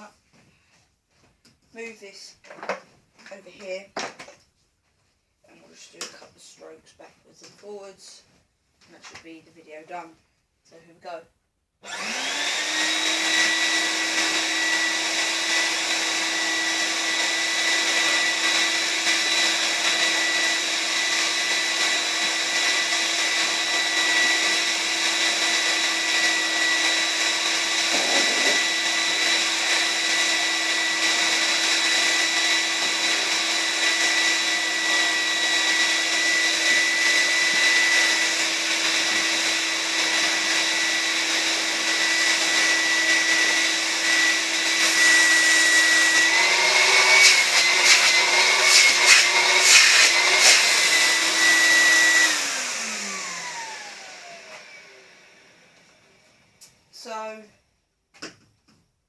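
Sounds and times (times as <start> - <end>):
vacuum cleaner motor whine: 11.8 - 56.6.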